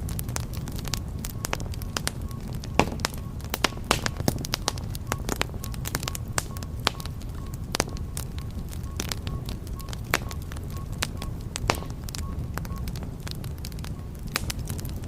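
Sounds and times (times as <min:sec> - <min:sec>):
low rumble of flames: 0:00.0 - 0:15.0
wood fire crackling and popping: 0:00.0 - 0:15.0.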